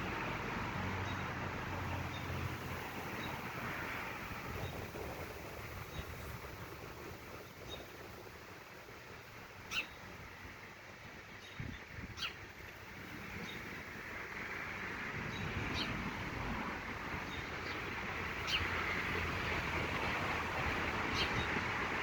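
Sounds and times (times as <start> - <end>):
outdoor rush of noise: 0.0 - 22.0
bird chirps: 9.7 - 10.0, 11.4 - 12.4.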